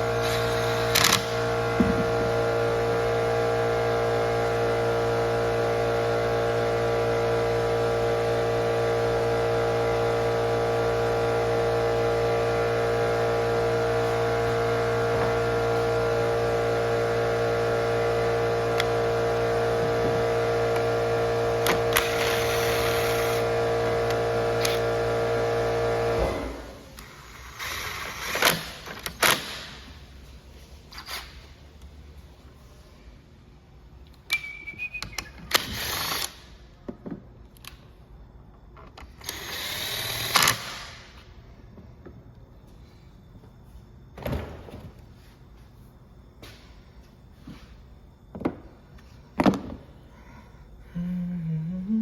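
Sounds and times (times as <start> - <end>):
string trimmer engine running: 0.0 - 26.5.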